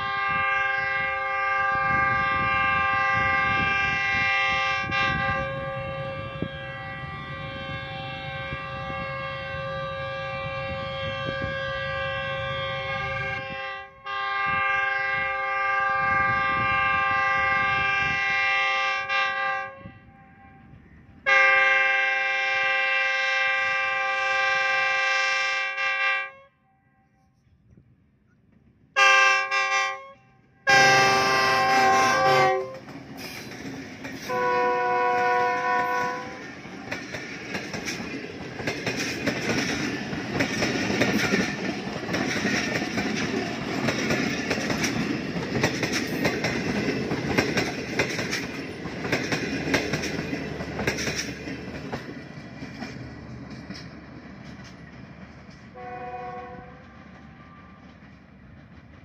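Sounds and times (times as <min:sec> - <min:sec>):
locomotive air horn blasts: 0:00.0 - 0:20.6, 0:21.2 - 0:27.2, 0:29.0 - 0:32.8, 0:34.2 - 0:36.5, 0:55.7 - 0:57.9
train passing with wheels clicking: 0:00.0 - 0:26.0, 0:27.4 - 0:59.0.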